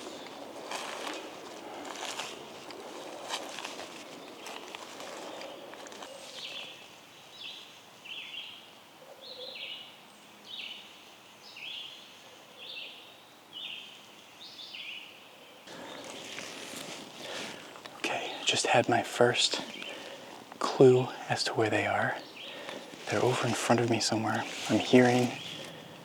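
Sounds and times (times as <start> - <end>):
leaves rustling: 0.0 - 7.1, 15.7 - 26.0
squirrel alarm calls: 15.7 - 26.0.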